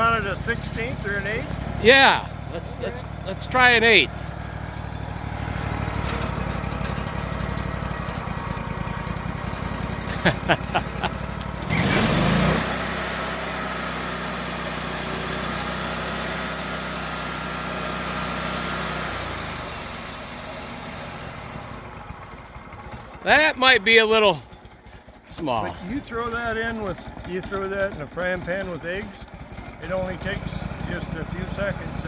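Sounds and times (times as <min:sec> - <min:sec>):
sawmill engine running: 0:00.0 - 0:32.0
band saw blade hissing: 0:11.6 - 0:21.9.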